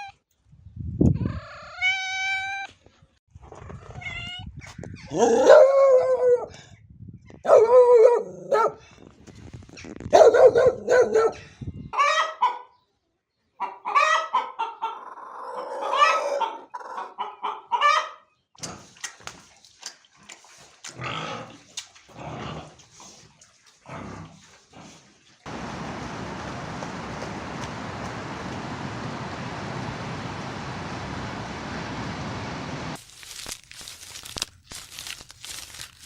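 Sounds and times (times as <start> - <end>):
chickens clucking: 13.6 - 18.1
pig grunting: 20.9 - 22.8.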